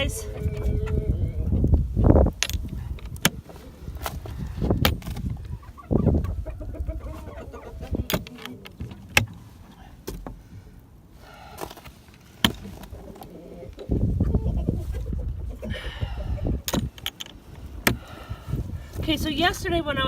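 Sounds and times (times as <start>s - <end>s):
chickens clucking: 0.0s - 9.8s, 12.6s - 17.0s
handling knocks and clicks: 2.3s - 5.4s, 7.9s - 10.4s, 11.6s - 13.3s, 16.6s - 18.0s.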